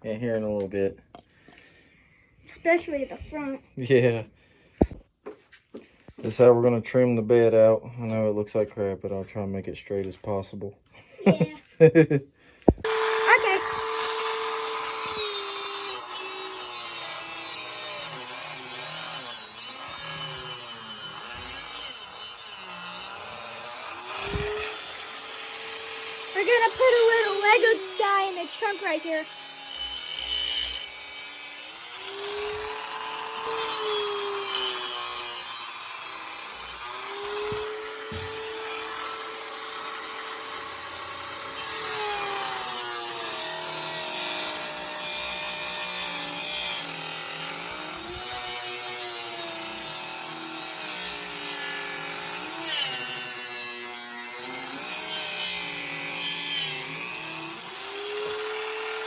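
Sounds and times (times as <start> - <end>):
rotary tool grinding wood: 12.7 - 59.0.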